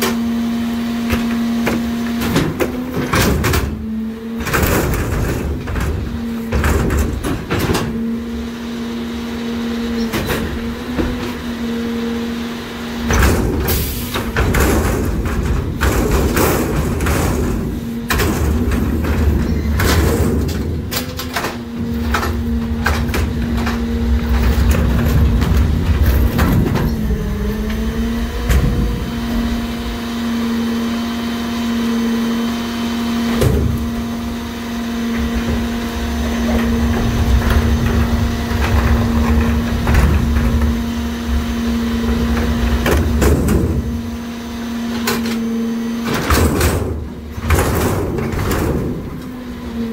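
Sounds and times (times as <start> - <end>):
garbage truck hydraulics humming: 0.0 - 49.9
trash and metal banging: 1.0 - 8.3, 9.8 - 11.6, 13.0 - 32.4, 33.2 - 49.9
low rumble: 21.9 - 30.1.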